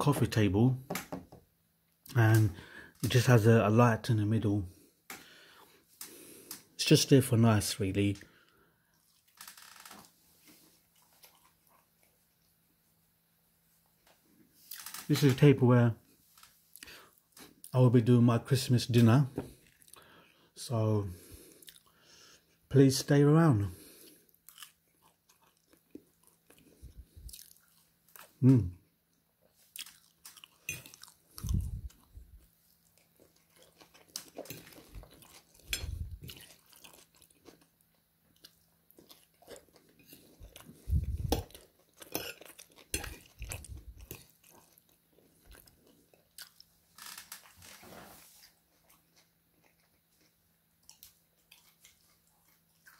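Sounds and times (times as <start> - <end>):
chewing and crunching food: 8.0 - 12.8, 16.1 - 17.8, 19.0 - 20.5, 21.2 - 22.7, 23.7 - 52.9.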